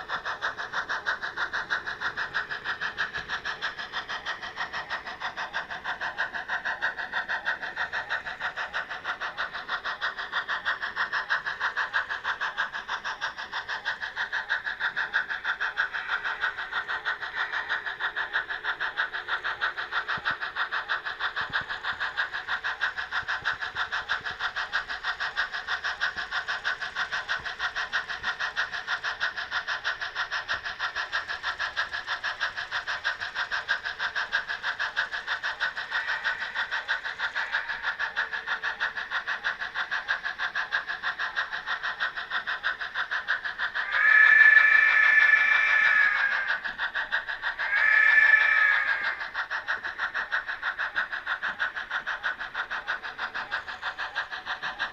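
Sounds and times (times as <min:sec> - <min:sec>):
model steam locomotive chuffing: 0:00.0 - 0:54.9
locomotive whistle blowing: 0:44.0 - 0:46.4.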